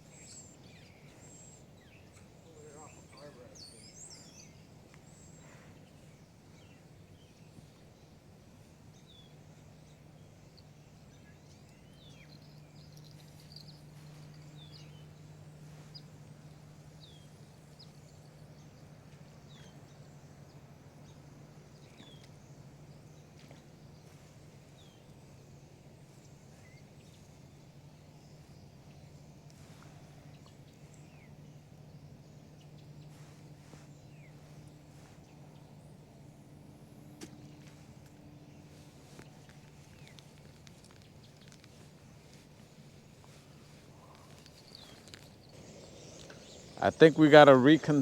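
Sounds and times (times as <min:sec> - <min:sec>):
bird chirping: 0:00.0 - 0:08.2, 0:09.0 - 0:24.2, 0:38.5 - 0:48.0
faint steady low hum: 0:00.0 - 0:48.0.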